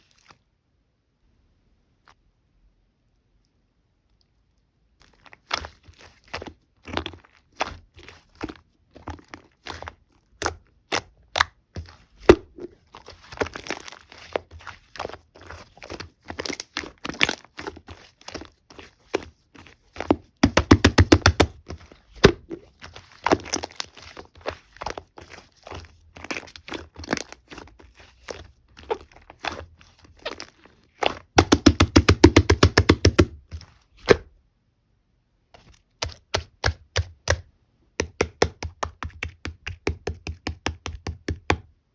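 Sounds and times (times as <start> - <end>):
slime squished by hand: 5.0 - 34.3.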